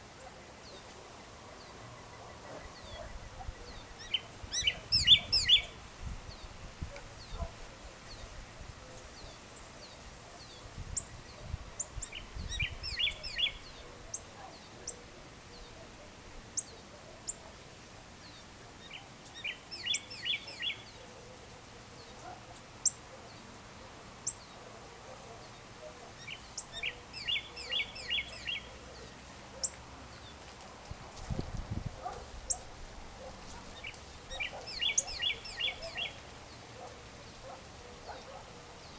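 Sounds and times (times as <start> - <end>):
steady background hiss: 0.0 - 38.9
thin high bird chirps: 33.6 - 36.2.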